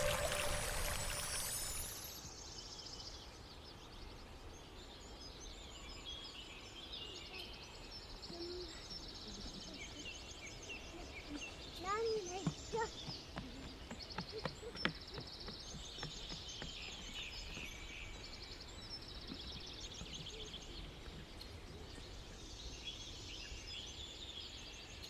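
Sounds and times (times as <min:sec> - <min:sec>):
songbirds trilling: 0:03.8 - 0:25.0.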